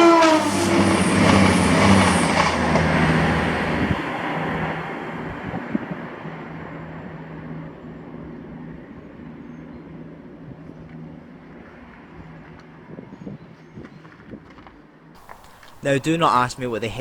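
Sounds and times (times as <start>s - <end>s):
diesel train engine drone: 0.0s - 10.4s.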